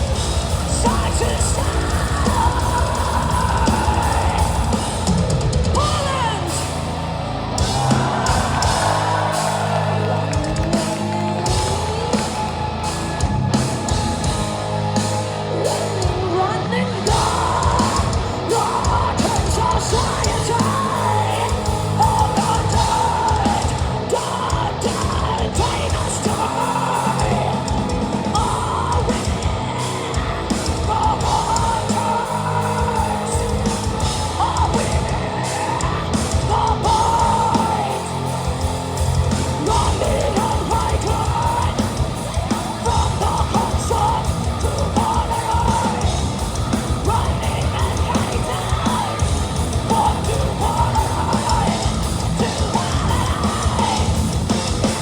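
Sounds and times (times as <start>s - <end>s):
bass: 0.0s - 55.0s
distorted guitars: 0.0s - 55.0s
drums: 0.0s - 55.0s.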